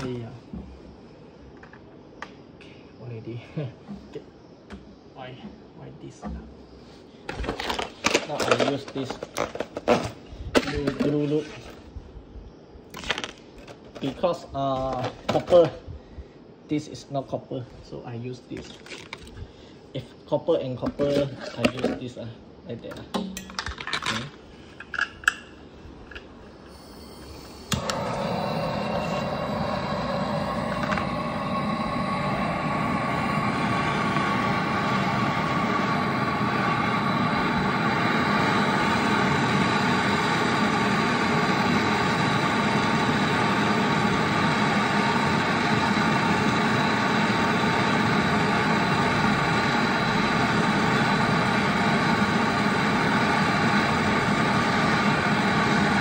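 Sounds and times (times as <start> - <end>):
brazing torch roaring: 26.6 - 56.0.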